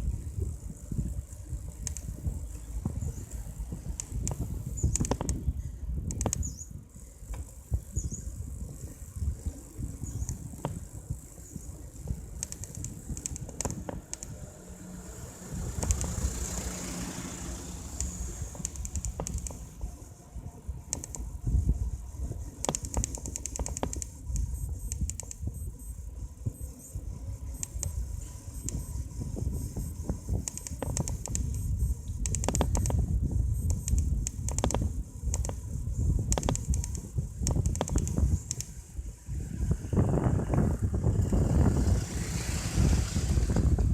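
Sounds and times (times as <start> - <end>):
bike clicks and rattles: 0.0 - 43.9
wind rumbling on microphone: 0.0 - 43.9
vehicle passing: 14.3 - 20.2, 39.3 - 43.9.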